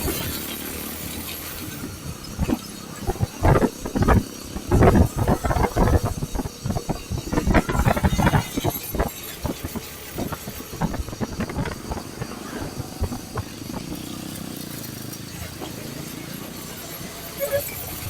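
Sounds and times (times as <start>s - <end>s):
wind buffeting microphone: 0.0s - 14.3s
motorcycle riding: 0.0s - 18.0s.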